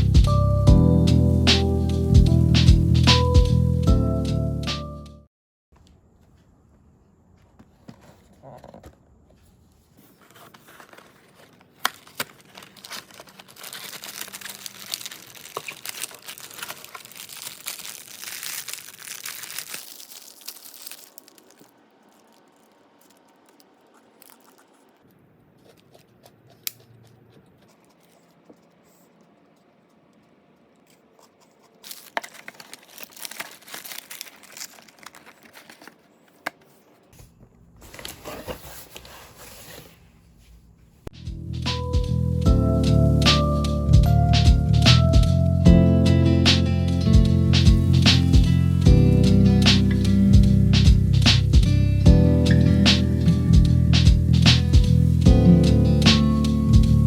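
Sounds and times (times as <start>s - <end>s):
packaging crinkling and tearing: 10.2s - 28.7s, 31.2s - 36.9s.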